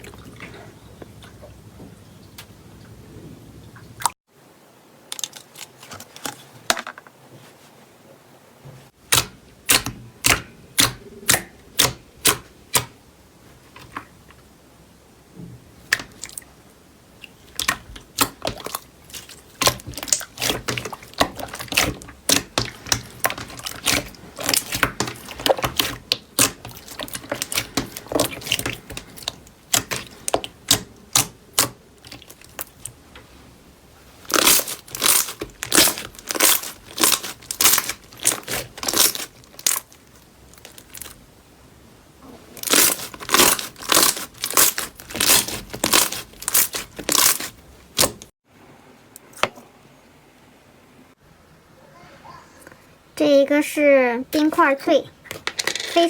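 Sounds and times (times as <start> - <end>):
slime crackling and popping: 17.6 - 32.9, 34.2 - 41.2, 42.6 - 48.3.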